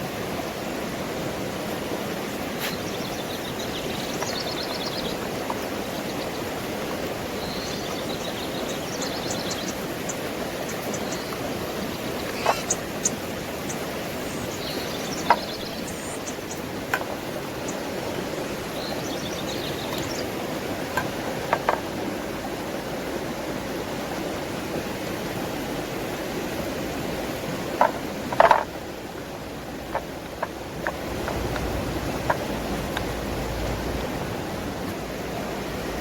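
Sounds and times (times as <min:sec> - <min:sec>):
steady rushing noise: 0:00.0 - 0:36.0
sharp knocks and clicks: 0:15.2 - 0:15.5, 0:21.0 - 0:21.8, 0:27.8 - 0:28.7, 0:29.9 - 0:33.2.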